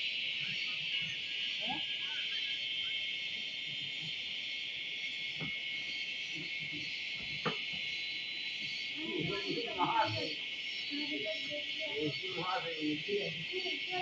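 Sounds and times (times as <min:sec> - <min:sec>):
insects shrilling: 0:00.0 - 0:14.0.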